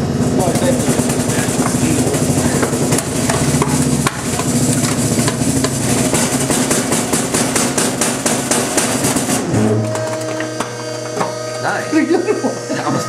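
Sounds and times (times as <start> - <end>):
trash compactor engine and hydraulics: 0.0 - 13.0
microwave casing cracking and crunching: 1.0 - 11.1.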